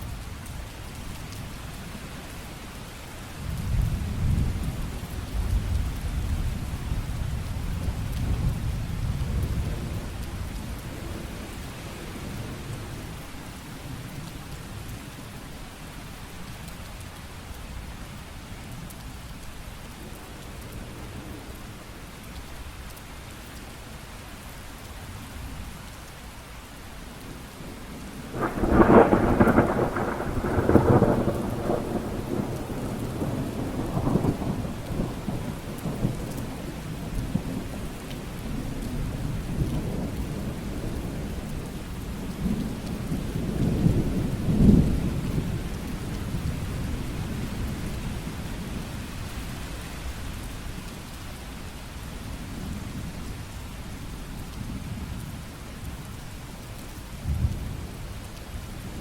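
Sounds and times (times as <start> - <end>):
steady rain falling: 0.0 - 59.0
thunder rumbling: 28.2 - 37.7.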